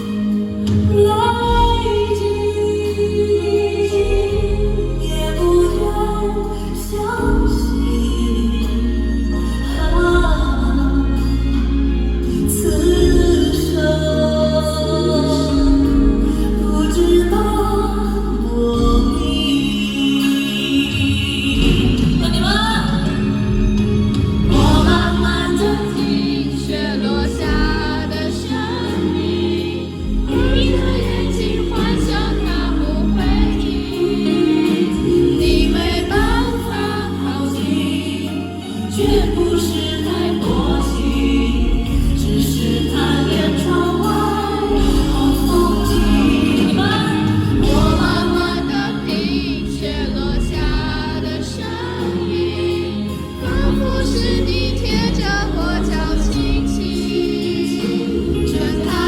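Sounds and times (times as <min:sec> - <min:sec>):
instrumental accompaniment: 0:00.0 - 0:59.0
man singing a ballad: 0:00.0 - 0:59.0
man singing slow song: 0:01.5 - 0:23.7.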